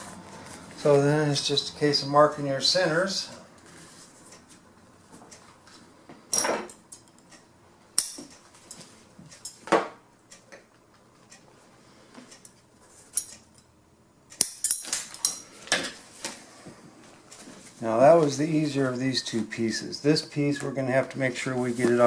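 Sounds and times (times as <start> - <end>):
tools clicking and knocking: 8.0 - 10.7, 14.3 - 16.0.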